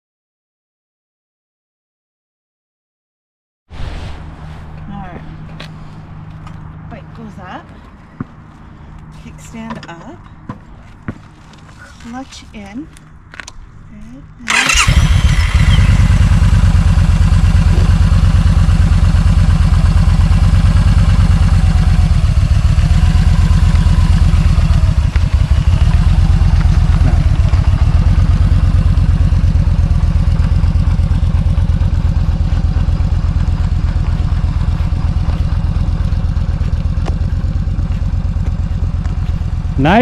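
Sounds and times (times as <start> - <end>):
motorcycle engine idling: 14.5 - 40.0.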